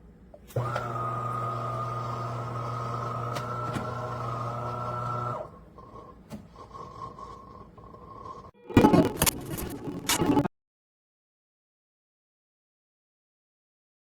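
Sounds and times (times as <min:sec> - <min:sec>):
espresso machine humming: 0:00.5 - 0:06.1.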